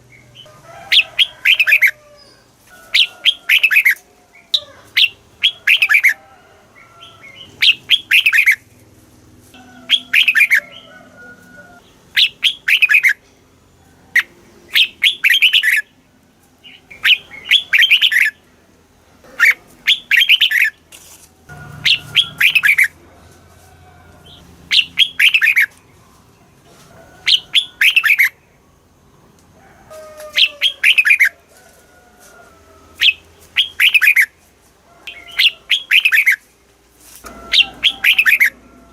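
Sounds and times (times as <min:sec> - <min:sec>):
bird singing falling phrases: 0:03.0 - 0:06.2, 0:06.8 - 0:08.9, 0:09.9 - 0:10.8, 0:11.8 - 0:13.4, 0:14.2 - 0:15.9, 0:16.6 - 0:18.6, 0:19.2 - 0:20.8, 0:21.5 - 0:23.0, 0:24.2 - 0:26.5, 0:27.2 - 0:29.4, 0:30.3 - 0:31.3, 0:33.0 - 0:34.3, 0:35.1 - 0:36.5, 0:37.2 - 0:38.8.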